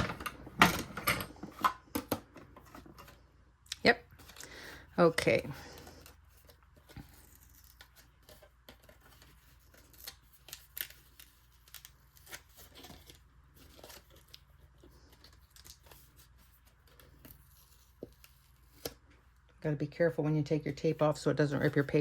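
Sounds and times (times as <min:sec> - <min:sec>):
paper rustling: 0:04.2 - 0:18.9.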